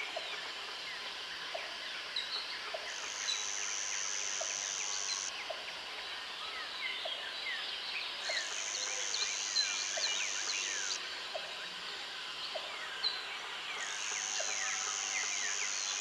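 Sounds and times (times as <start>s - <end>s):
high-pitched insect buzz: 2.9s - 5.3s, 8.3s - 11.0s, 13.7s - 16.0s.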